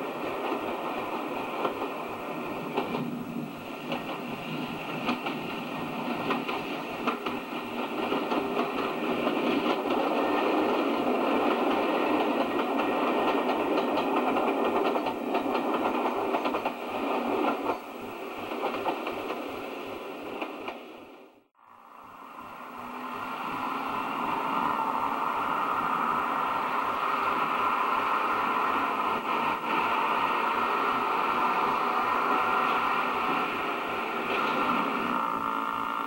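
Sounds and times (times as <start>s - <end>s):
wheels clicking over rail joints: 0.0s - 19.7s.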